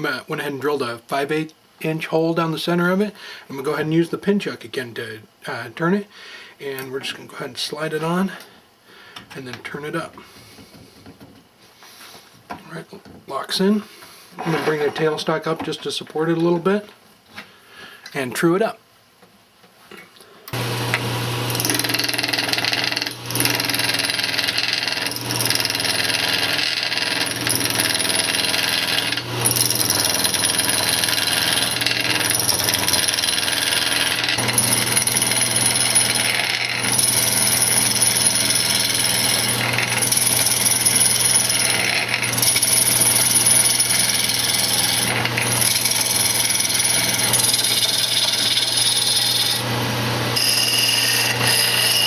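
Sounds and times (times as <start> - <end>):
turning tool cutting wood hiss: 20.5 - 52.0
wood lathe motor hum: 20.6 - 52.0.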